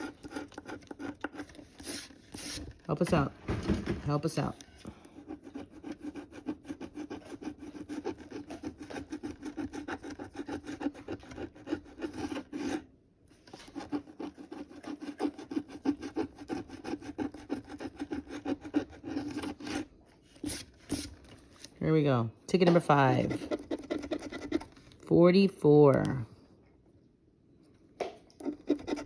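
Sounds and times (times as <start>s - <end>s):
scratching lottery ticket coating: 0.0s - 3.3s, 4.1s - 12.8s, 13.4s - 21.1s, 22.9s - 25.0s, 28.5s - 29.0s.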